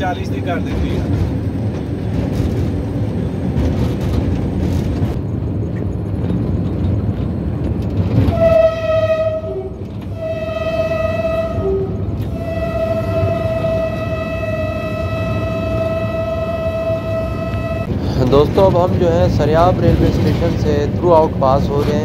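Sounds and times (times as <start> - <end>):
train wheels rumbling on track: 0.0 - 22.0
locomotive horn blasts: 8.2 - 17.9.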